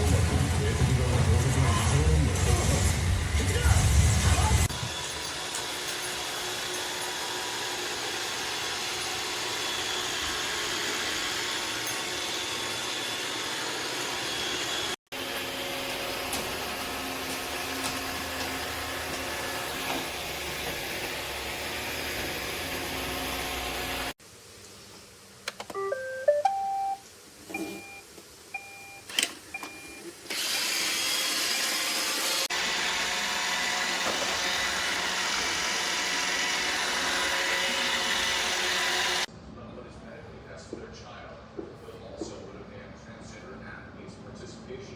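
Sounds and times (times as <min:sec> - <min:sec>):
robot vacuum whirring: 0:00.1 - 0:24.1, 0:29.1 - 0:39.3.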